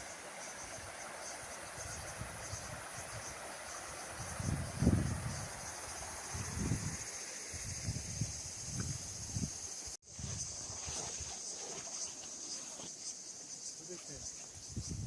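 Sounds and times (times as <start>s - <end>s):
insects chirping: 0.0s - 15.0s
wind rumble on microphone: 4.2s - 10.7s, 14.6s - 15.0s.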